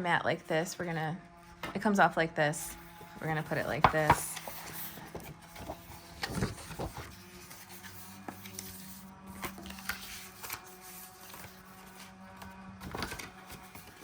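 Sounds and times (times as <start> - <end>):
paper taps and rustles: 3.6 - 7.1.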